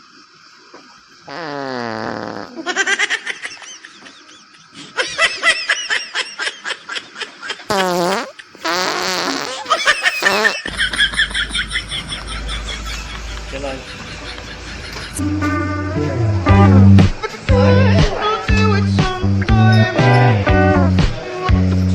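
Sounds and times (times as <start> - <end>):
fart noises: 1.3 - 2.7, 7.7 - 10.7.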